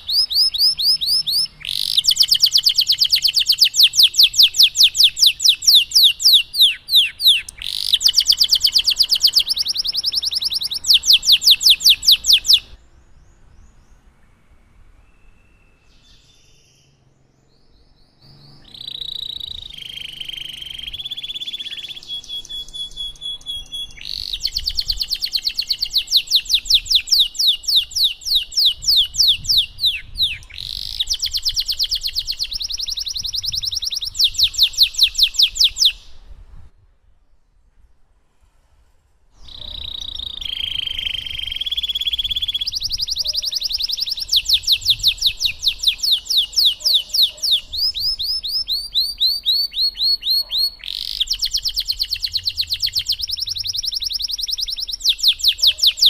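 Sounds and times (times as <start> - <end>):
canary singing trills: 0.0 - 14.4, 15.0 - 36.4, 39.4 - 56.0.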